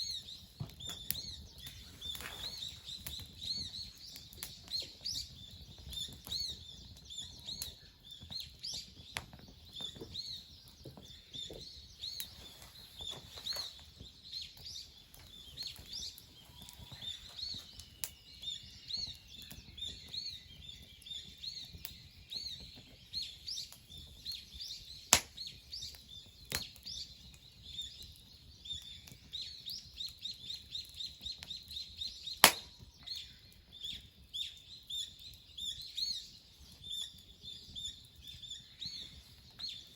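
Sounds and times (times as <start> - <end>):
small birds chirping: 0.0 - 39.9
sharp snaps: 25.1 - 25.4, 32.4 - 32.8.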